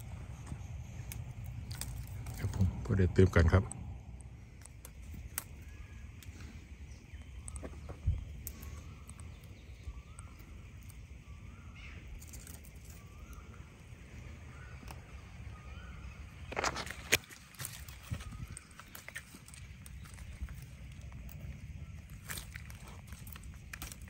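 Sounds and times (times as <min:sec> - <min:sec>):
bird calling: 0:00.0 - 0:24.0
sharp clicks: 0:00.4 - 0:11.1.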